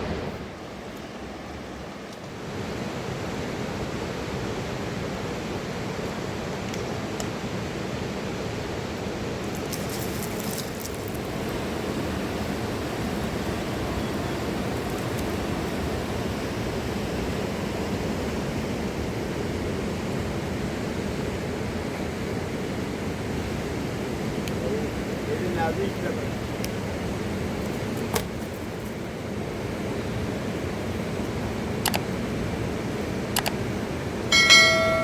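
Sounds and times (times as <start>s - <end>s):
river rushing: 0.0s - 35.0s
faint clicks: 31.8s - 32.1s, 33.4s - 33.6s.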